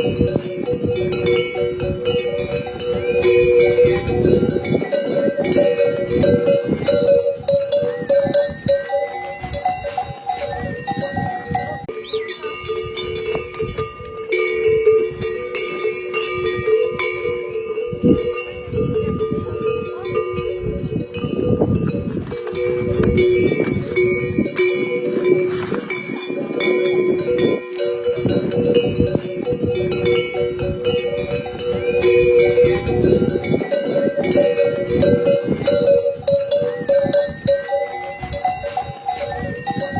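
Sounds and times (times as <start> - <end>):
livestock bells clanking: 0.0 - 39.9.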